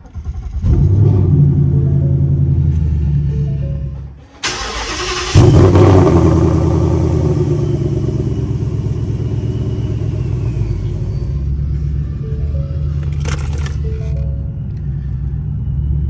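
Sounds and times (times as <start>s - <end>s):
car engine starting and idling: 0.0s - 16.0s
starter cranking: 4.4s - 6.5s.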